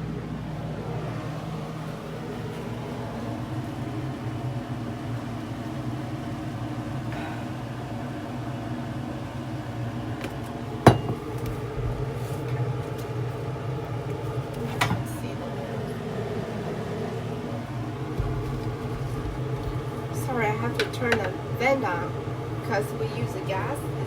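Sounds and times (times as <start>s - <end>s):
low kitchen hum: 0.0s - 24.0s
cookware clinking: 10.2s - 11.8s.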